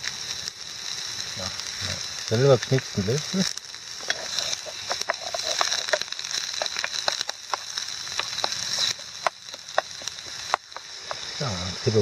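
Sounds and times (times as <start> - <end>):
onions sizzling in frying pan: 0.0 - 12.0
wooden spoon stirring: 4.0 - 11.2.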